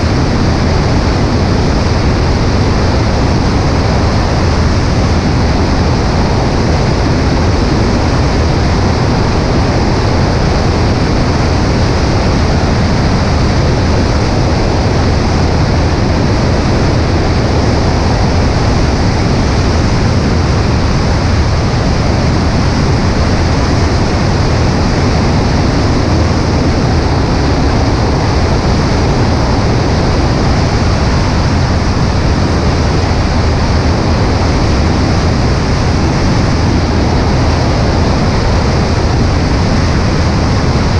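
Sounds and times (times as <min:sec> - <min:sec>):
light aircraft engine droning: 0:00.0 - 0:40.9
wind rushing over microphone: 0:00.0 - 0:40.9.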